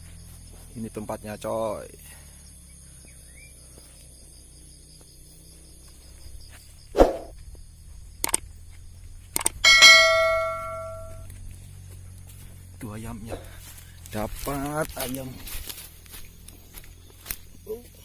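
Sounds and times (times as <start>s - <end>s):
short clicks: 8.2s - 8.4s, 9.4s - 9.6s
bright bell-like ring: 9.6s - 11.2s.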